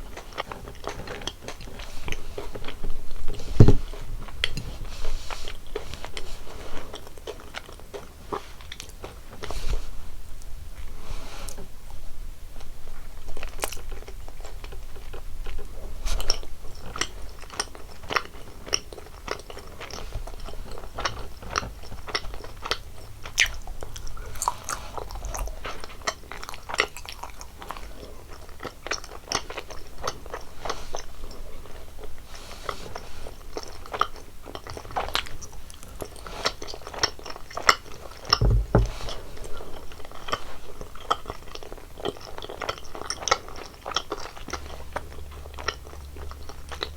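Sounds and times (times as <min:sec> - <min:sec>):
chewing crunchy candy: 0:13.3 - 0:46.9
low thump: 0:38.4 - 0:39.2.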